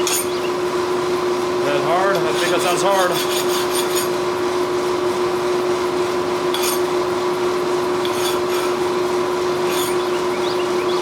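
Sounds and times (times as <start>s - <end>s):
steady mechanical hum: 0.0s - 11.0s
file scraping knife blade: 2.3s - 4.2s, 6.5s - 6.9s, 8.0s - 8.8s, 9.6s - 10.2s.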